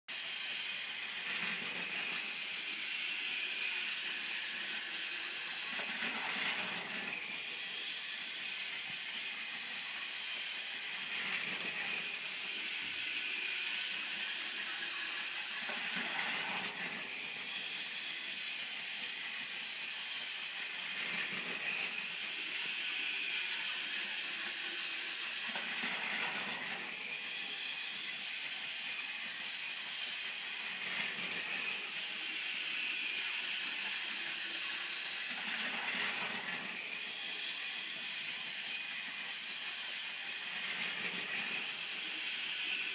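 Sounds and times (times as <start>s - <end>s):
toy train motor buzzing: 0.1s - 42.9s
wheels clattering on plastic rails: 5.6s - 7.3s, 11.0s - 12.1s, 15.5s - 17.1s, 25.4s - 27.0s, 35.3s - 36.9s, 40.5s - 42.1s.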